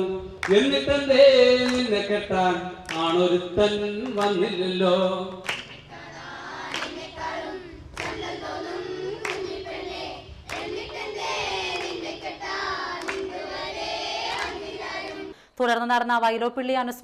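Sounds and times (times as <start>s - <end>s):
voices singing: 0.0s - 15.4s
sharp hand claps: 0.4s - 0.8s, 1.6s - 2.0s, 2.8s - 3.2s, 4.0s - 4.4s, 5.3s - 5.9s, 6.7s - 7.1s, 8.0s - 8.3s, 9.1s - 9.6s, 10.5s - 12.1s, 12.9s - 13.4s, 14.3s - 15.2s.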